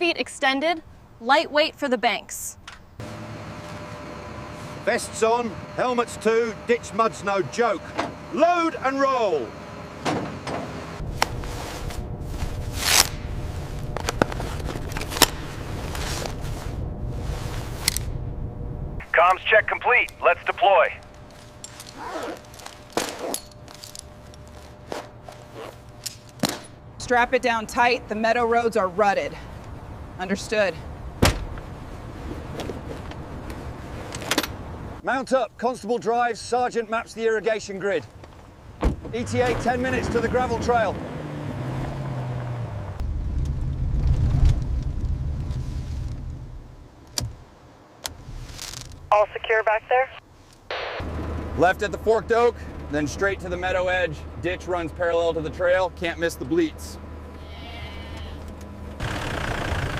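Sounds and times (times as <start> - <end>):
low steady hum: 3.0 - 35.0
vehicle engine running: 3.0 - 35.0, 58.4 - 59.9.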